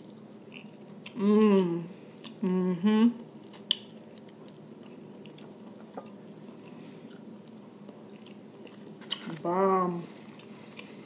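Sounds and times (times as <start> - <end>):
faint chewing: 3.2 - 11.0.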